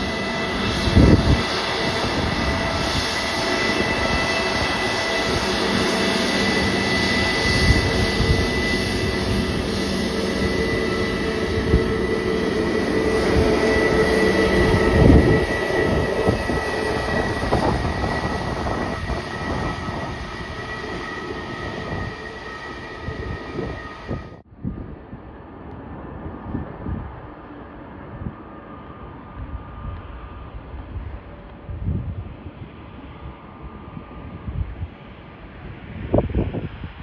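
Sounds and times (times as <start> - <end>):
jet engines whining: 0.0 - 24.4.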